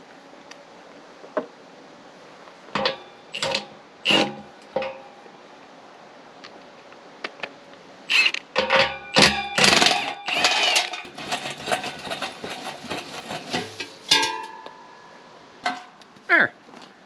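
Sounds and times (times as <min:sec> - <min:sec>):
impact wrench hammering: 0:02.8 - 0:05.0, 0:08.1 - 0:12.6
metal clanks: 0:02.8 - 0:05.2, 0:08.1 - 0:16.1.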